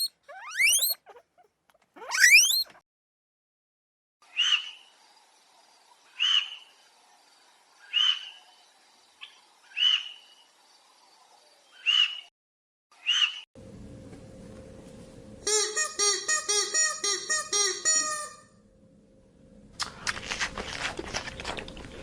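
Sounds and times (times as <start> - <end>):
small animal high-pitched call: 0.0 - 2.8.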